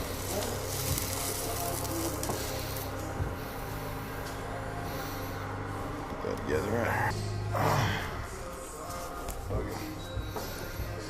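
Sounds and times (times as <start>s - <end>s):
low hum of machinery: 0.0s - 11.0s.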